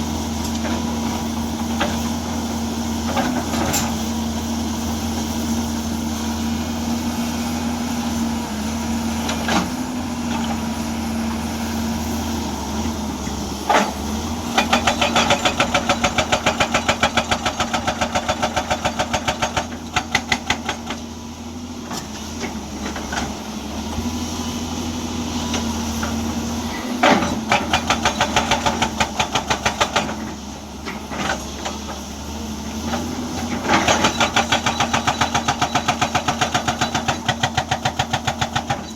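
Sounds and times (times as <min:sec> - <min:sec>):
excavator diesel engine running: 0:00.0 - 0:38.9
hydraulic hammer pounding rock: 0:13.2 - 0:21.1, 0:26.7 - 0:32.1, 0:32.8 - 0:38.9.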